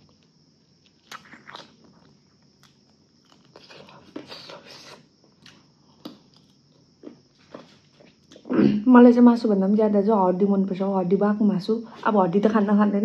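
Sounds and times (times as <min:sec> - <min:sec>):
person biting and chewing food: 0:00.0 - 0:08.5.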